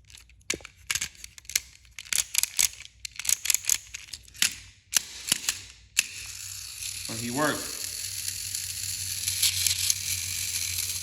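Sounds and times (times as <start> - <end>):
toy train motor running: 5.0 - 11.0.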